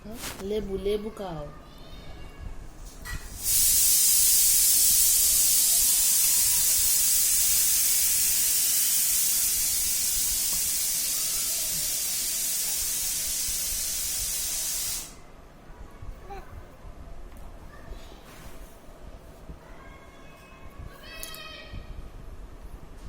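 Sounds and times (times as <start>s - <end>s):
loud high-pitched hiss: 3.1s - 15.2s.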